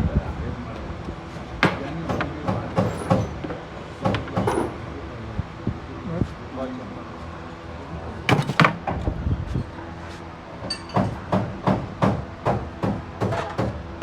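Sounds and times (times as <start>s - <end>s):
hammer strikes: 1.6s - 4.8s, 8.3s - 9.0s.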